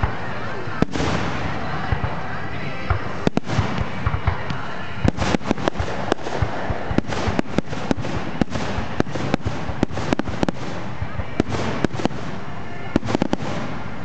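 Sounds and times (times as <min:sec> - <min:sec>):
crackling hiss: 0:00.0 - 0:14.0
fireworks bangs: 0:00.0 - 0:14.0.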